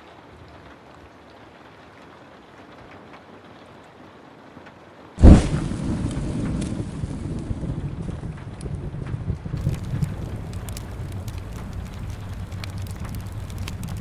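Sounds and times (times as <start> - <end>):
faint rain hiss: 0.0 - 14.0
small crackles: 0.0 - 14.0
thunderclap and rumble: 5.2 - 14.0.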